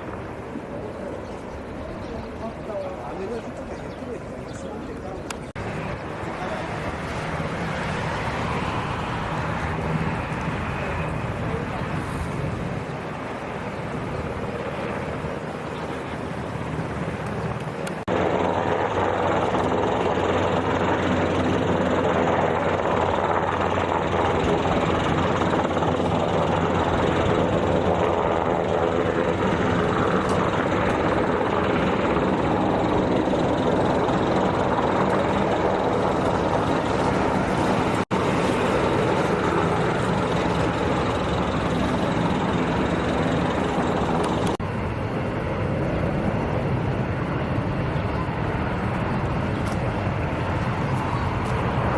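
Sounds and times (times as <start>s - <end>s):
aircraft engines running: 0.0s - 51.9s.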